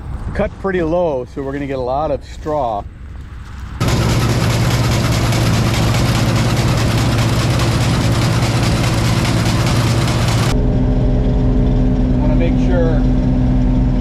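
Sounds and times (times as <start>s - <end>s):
diesel engine hum: 0.0s - 14.0s
threshing machinery rushing: 3.8s - 10.6s.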